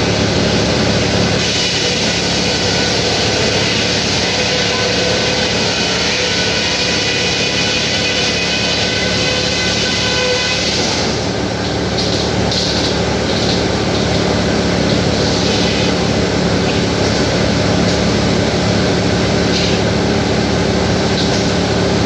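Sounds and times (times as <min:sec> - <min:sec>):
heavy engine drone: 0:00.0 - 0:22.0
loud machinery whir: 0:00.0 - 0:22.0.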